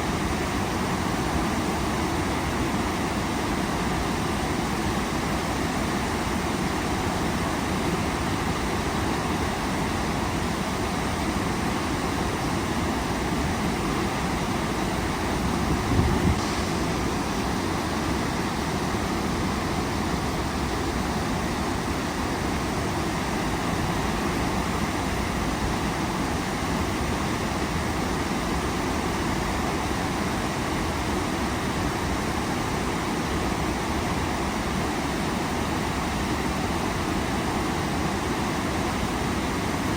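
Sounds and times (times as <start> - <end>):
waterfall rushing: 11.4 - 39.9.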